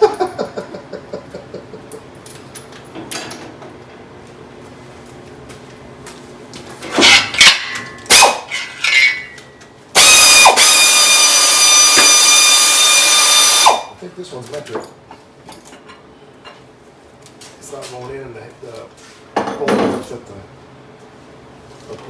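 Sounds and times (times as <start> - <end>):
power tool whining: 10.0 - 13.9.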